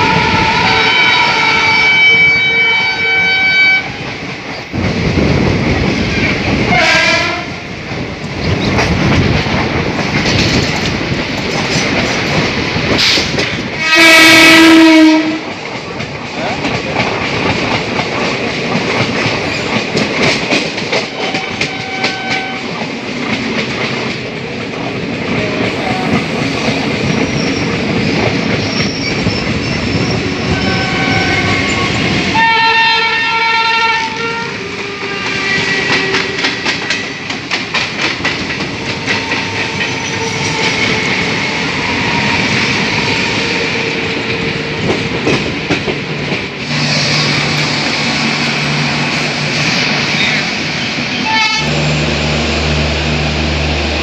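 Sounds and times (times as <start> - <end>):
train horn: 0.0 - 4.1, 6.7 - 7.6, 13.8 - 15.6, 21.2 - 22.8, 30.4 - 37.0, 51.2 - 52.2
train wheels clacking on rails: 0.0 - 52.1.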